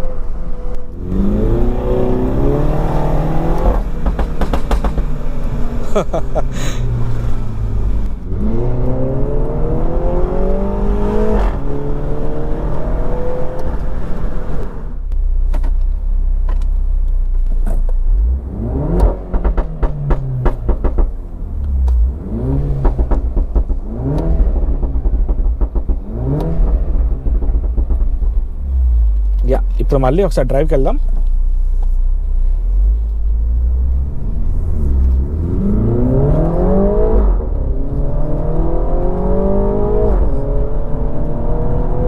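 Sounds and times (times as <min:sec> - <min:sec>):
car engine accelerating hard: 0:00.0 - 0:15.0, 0:18.0 - 0:31.2, 0:32.6 - 0:42.0
exhaust pops and crackles: 0:02.2 - 0:06.6, 0:13.5 - 0:32.3.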